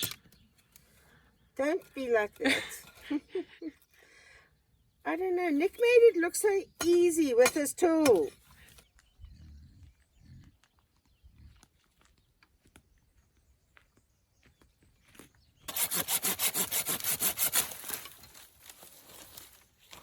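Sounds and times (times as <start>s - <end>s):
hand saw cutting wood: 15.7s - 19.2s.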